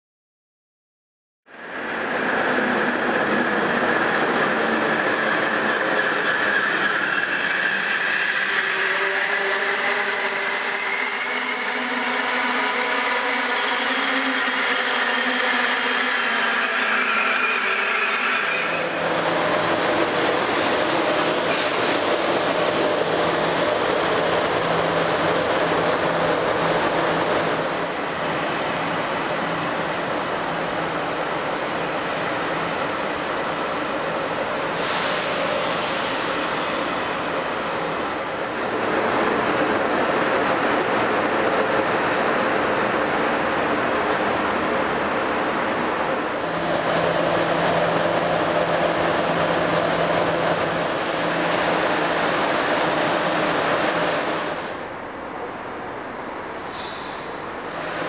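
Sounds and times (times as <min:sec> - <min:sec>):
high-speed train whining: 0:01.5 - 0:58.0.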